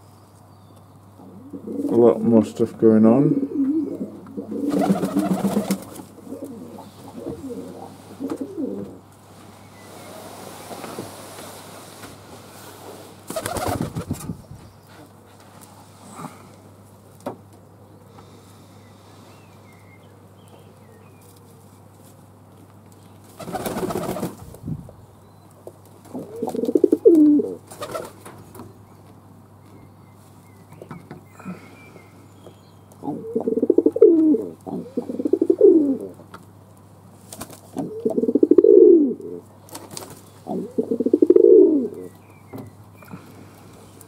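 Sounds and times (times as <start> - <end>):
doves cooing: 1.1 - 9.1, 26.0 - 28.3, 32.9 - 36.3, 37.7 - 44.0.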